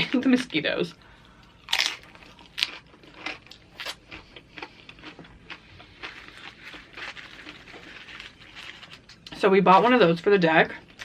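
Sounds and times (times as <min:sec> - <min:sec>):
crunching chips: 0:01.6 - 0:09.3.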